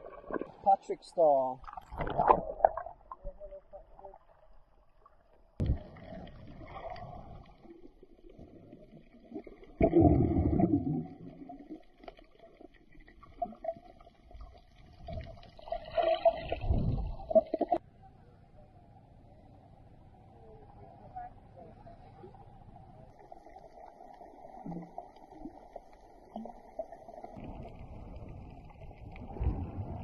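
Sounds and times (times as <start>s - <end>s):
water gurgling underwater: 0.0s - 0.6s, 1.6s - 17.8s, 23.1s - 30.0s
faint steady hum: 16.9s - 30.0s.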